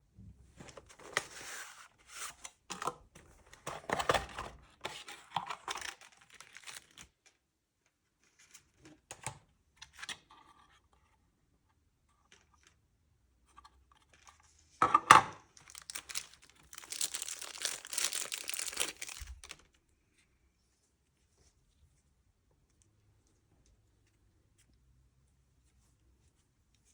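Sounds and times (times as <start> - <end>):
packaging tearing and crinkling: 5.7 - 7.0, 15.6 - 19.7.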